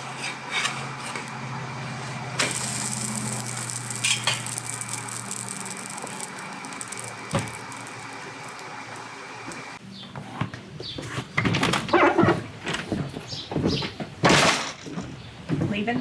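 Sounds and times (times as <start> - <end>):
steady hum: 1.6 - 9.8
knocks and clatter: 11.0 - 16.0.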